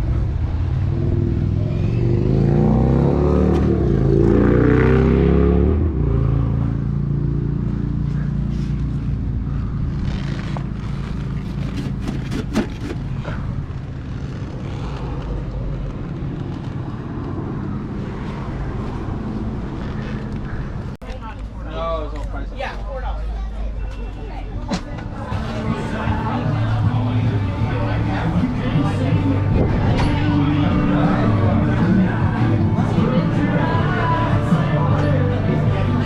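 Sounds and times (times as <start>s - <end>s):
vehicle engine: 0.0s - 22.4s, 24.8s - 36.0s
road noise: 0.0s - 36.0s.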